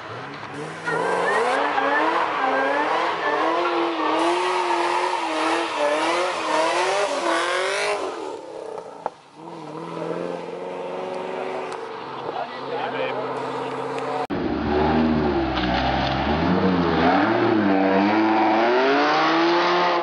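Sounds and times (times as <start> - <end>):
car engine revving hard: 0.5 - 8.5, 13.2 - 20.0.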